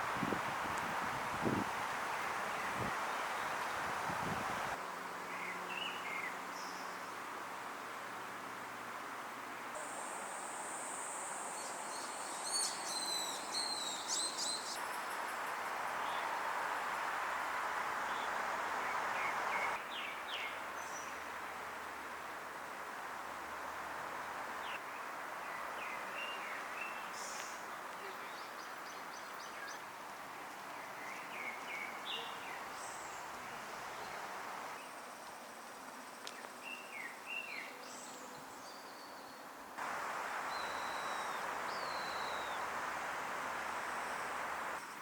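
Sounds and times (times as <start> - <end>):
steady outdoor hiss: 0.0 - 45.0
small birds chirping: 10.9 - 15.3, 36.2 - 42.9.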